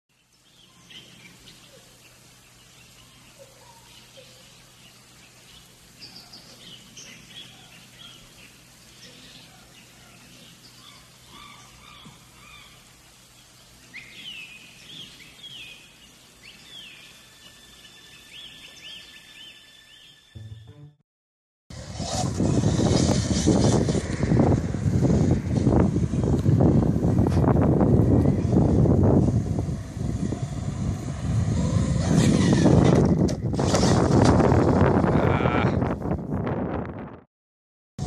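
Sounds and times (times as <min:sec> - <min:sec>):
birds chirping and calling: 0:00.2 - 0:20.3
repeated arching bird calls: 0:01.0 - 0:19.6.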